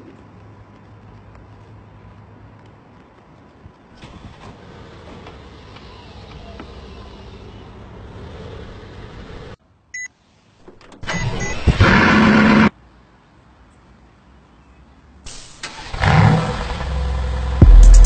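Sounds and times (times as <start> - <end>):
sports car engine revving: 15.9 - 18.0.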